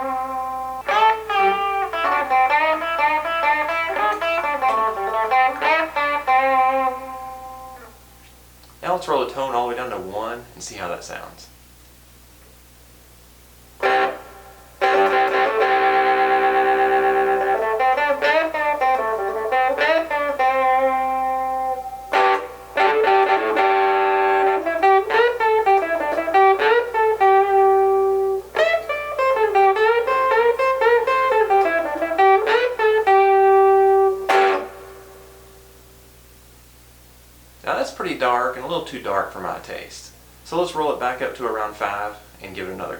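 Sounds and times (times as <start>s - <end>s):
overdriven electric guitar riff: 0.0s - 8.1s, 13.8s - 36.2s.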